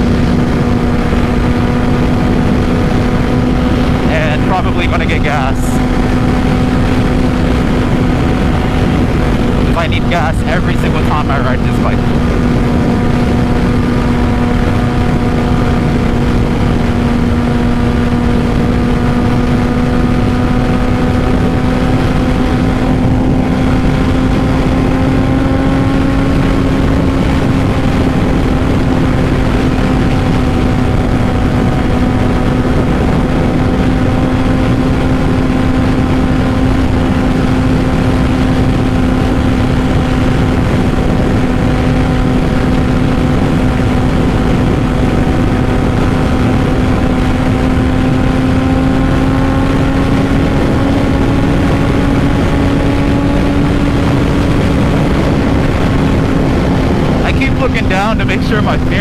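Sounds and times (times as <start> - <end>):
motorcycle engine cruising: 0.0 - 59.0
wind rushing over microphone: 0.0 - 59.0.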